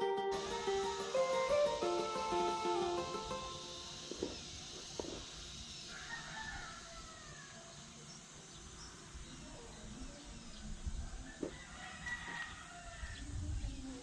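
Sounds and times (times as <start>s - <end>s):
rooster crowing: 5.7s - 7.8s, 11.2s - 13.3s.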